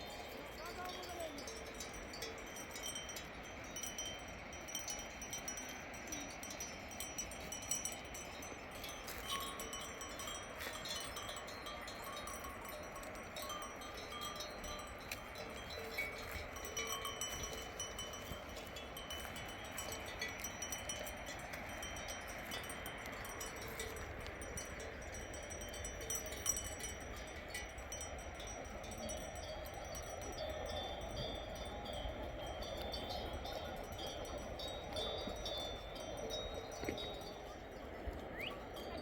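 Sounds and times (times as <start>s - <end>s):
sheep bells tinkling: 0.0s - 39.0s.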